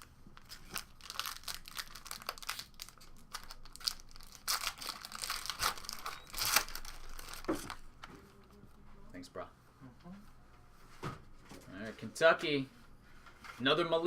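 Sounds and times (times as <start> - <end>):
wrapper crinkling and tearing: 0.0 - 7.8.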